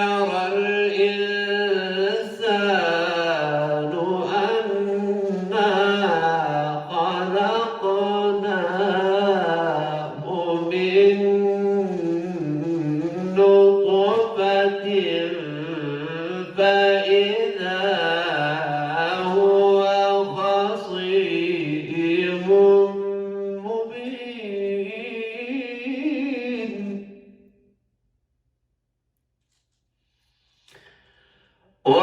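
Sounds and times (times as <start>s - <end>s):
man reciting melodically: 0.0s - 27.2s.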